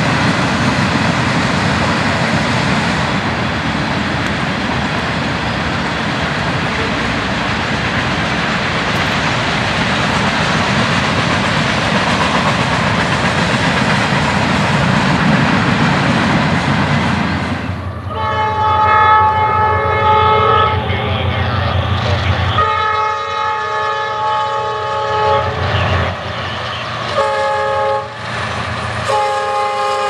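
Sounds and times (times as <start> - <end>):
freight train cars rolling: 0.0 - 30.0
locomotive horn: 18.1 - 28.2, 29.0 - 30.0.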